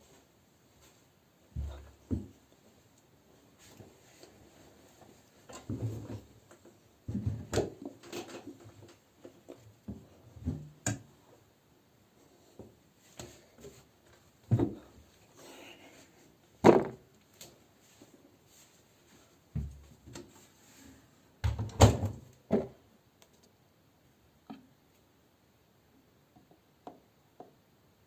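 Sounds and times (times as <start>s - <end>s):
knocks and bumps in washing machine: 7.1s - 7.8s, 21.4s - 22.8s.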